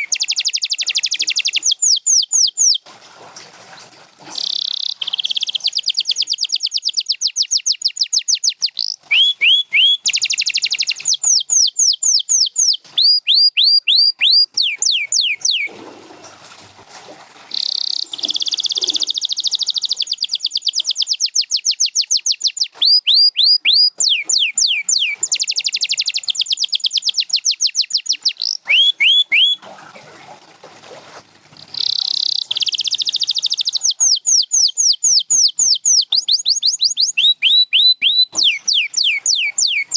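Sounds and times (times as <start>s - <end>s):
canary singing trills: 0.0s - 2.8s, 4.4s - 15.7s, 17.5s - 29.6s, 31.8s - 39.9s.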